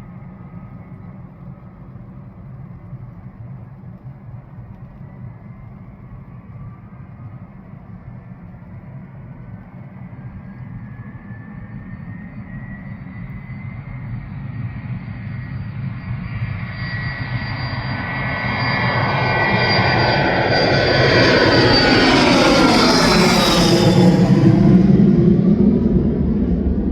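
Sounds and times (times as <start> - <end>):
jet engines whining: 8.4 - 26.9.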